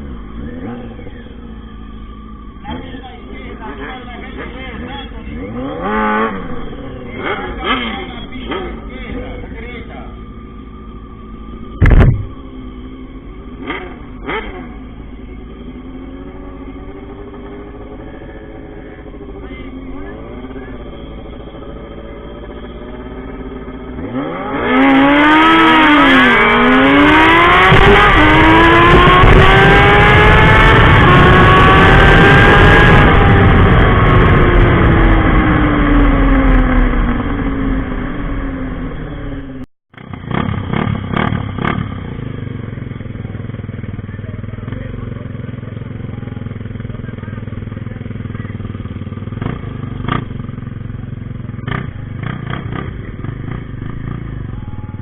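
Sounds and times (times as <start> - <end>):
motorcycle accelerating through gears: 0.0 - 55.0
motorcycle engines revving: 0.0 - 55.0
sharp loud bang: 11.8 - 12.4.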